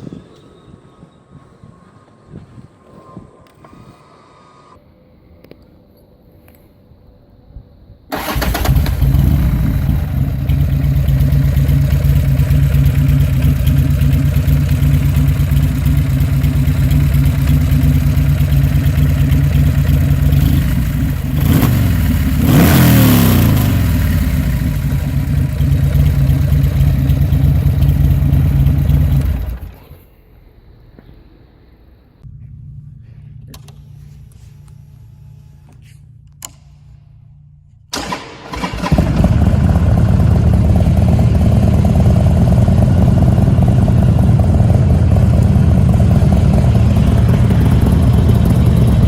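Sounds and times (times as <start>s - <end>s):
motorcycle engine idling: 8.2s - 30.0s, 38.6s - 49.0s.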